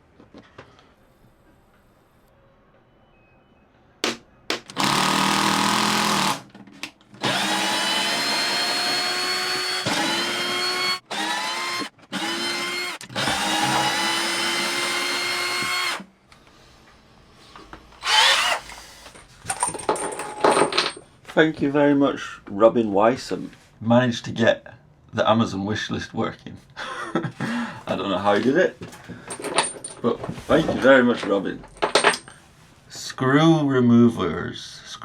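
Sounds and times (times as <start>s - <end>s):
power drill motor whine: 4.7s - 6.4s, 7.2s - 16.0s, 18.0s - 19.1s.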